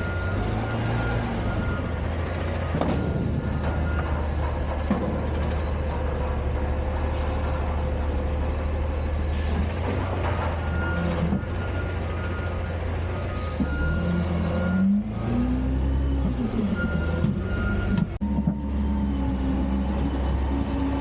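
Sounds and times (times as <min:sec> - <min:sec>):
garbage truck engine droning: 0:00.0 - 0:21.0
metal clanks and knocks: 0:02.6 - 0:06.8, 0:09.4 - 0:11.5.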